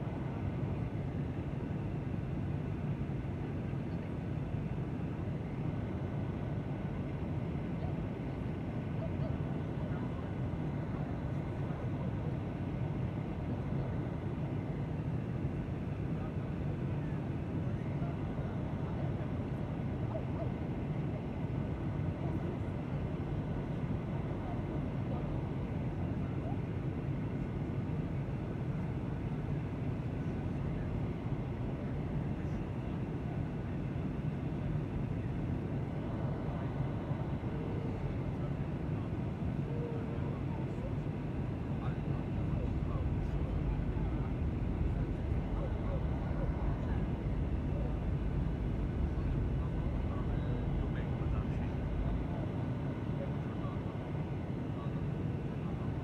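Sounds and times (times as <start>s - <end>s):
airliner cabin drone: 0.0s - 56.0s
engines rumbling: 41.1s - 54.5s.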